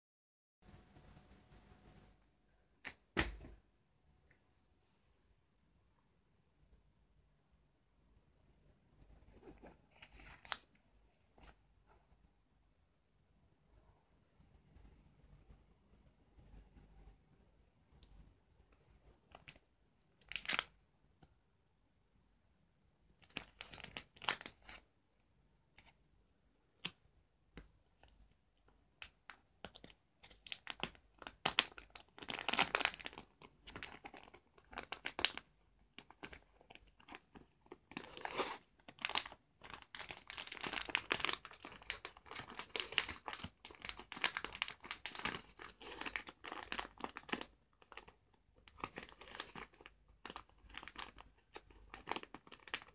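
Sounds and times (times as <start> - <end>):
packaging crinkling and tearing: 20.2 - 20.7, 23.2 - 24.8, 29.6 - 52.9.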